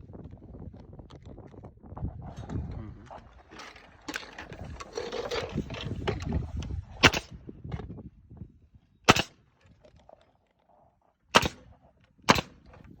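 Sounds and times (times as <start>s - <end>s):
nail gun firing: 7.0s - 7.4s, 9.1s - 9.4s, 11.4s - 11.7s, 12.3s - 12.9s.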